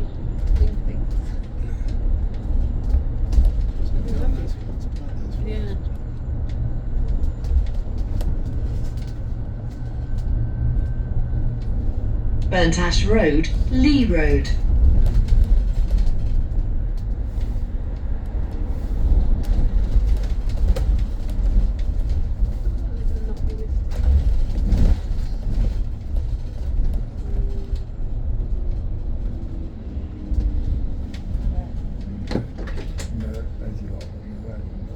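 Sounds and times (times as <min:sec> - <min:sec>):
bus cabin low rumble: 0:00.0 - 0:34.9
bus bump: 0:30.4 - 0:34.2.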